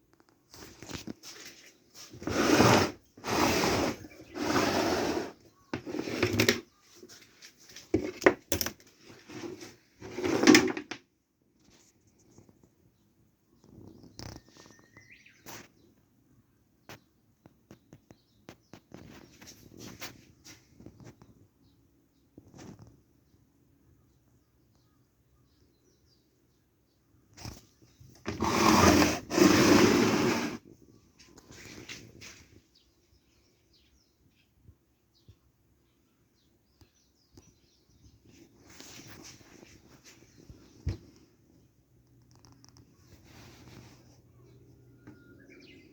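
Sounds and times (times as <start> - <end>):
pump motor rough grinding: 28.2 - 30.6.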